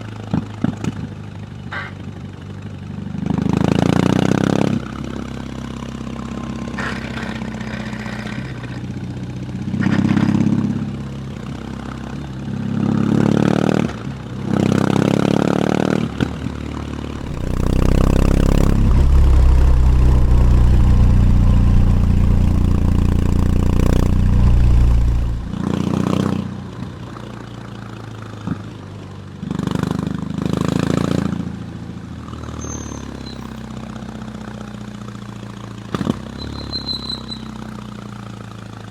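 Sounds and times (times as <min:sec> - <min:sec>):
motorcycle engine revving: 0:11.6 - 0:26.8.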